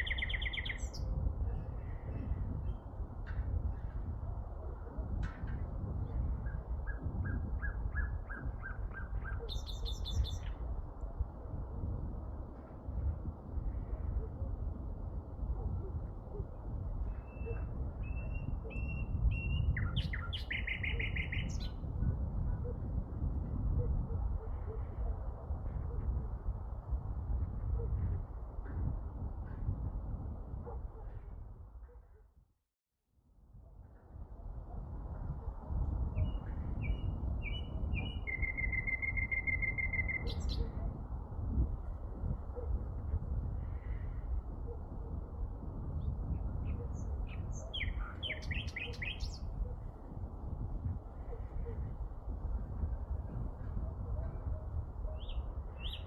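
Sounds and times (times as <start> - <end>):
songbird singing: 0.0 - 3.0, 6.1 - 10.6, 17.1 - 21.9, 36.1 - 40.9, 46.1 - 49.7, 53.3 - 56.0.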